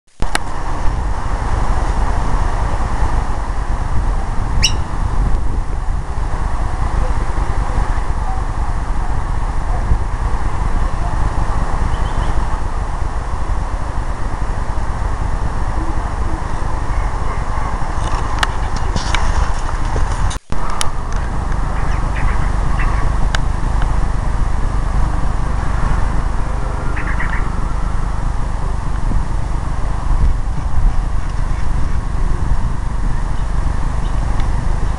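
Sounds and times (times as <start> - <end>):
loud steady low rumble: 0.1 - 34.9
short sharp bird chirps: 4.6 - 4.9.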